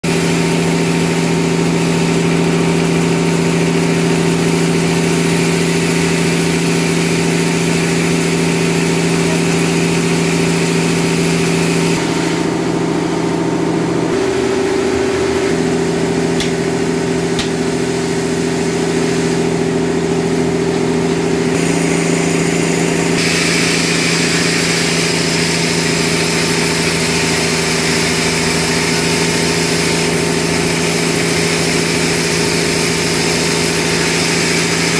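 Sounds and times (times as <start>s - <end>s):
sawmill engine droning: 0.0s - 34.9s
hiss: 21.6s - 34.9s.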